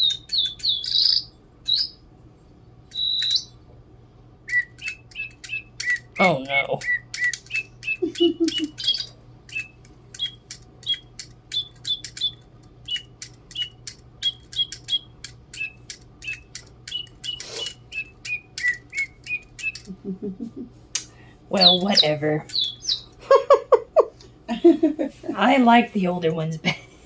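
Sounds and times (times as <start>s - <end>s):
electronic toy birds chirping: 0.0s - 2.1s, 2.8s - 3.6s, 4.4s - 20.0s, 20.7s - 23.6s.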